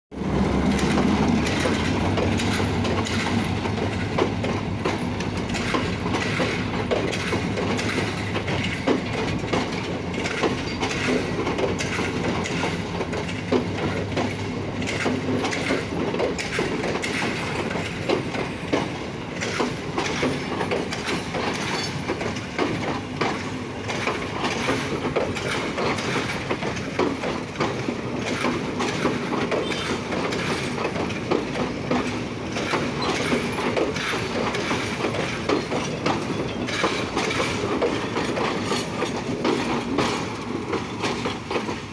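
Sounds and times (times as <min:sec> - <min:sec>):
diesel locomotive engine drone: 0:00.1 - 0:41.9
wheel clicks over rail joints: 0:00.5 - 0:41.9.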